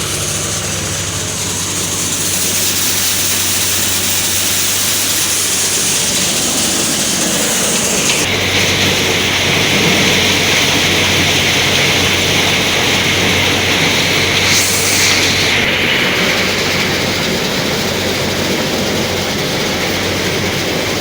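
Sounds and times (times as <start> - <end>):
bright hiss: 0.0 - 20.8
tractor and thresher running: 0.0 - 21.0
low hum: 5.1 - 21.0.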